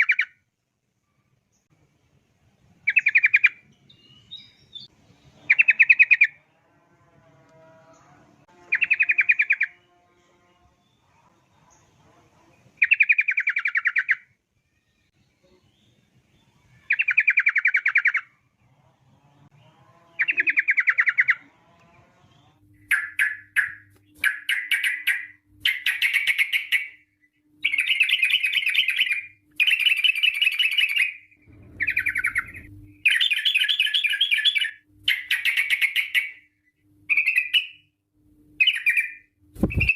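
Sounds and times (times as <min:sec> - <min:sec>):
bird singing chattering phrases: 0:20.1 - 0:21.4, 0:31.8 - 0:36.4.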